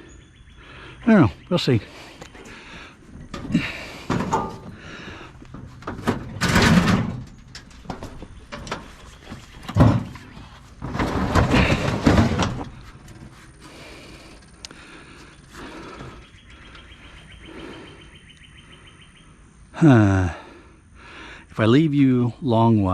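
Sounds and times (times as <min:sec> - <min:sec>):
scrap metal knocking and scraping: 0:02.4 - 0:14.0.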